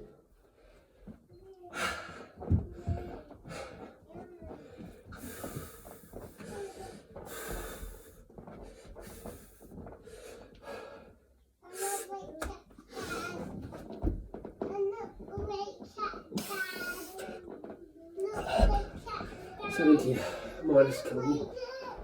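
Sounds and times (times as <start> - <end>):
man breathing heavily: 0.4 - 12.1.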